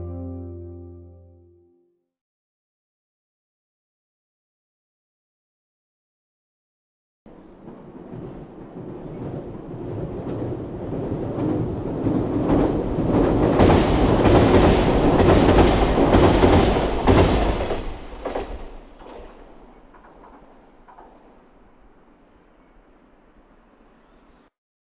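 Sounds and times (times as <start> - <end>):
train rumbling past: 7.3 - 24.3
train wheels clacking: 11.4 - 21.8.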